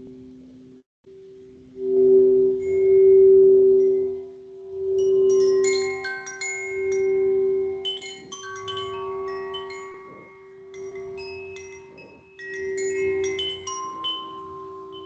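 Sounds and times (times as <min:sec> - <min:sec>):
singing bowl low tone: 0:00.0 - 0:15.0
wind chimes ringing: 0:03.8 - 0:15.0.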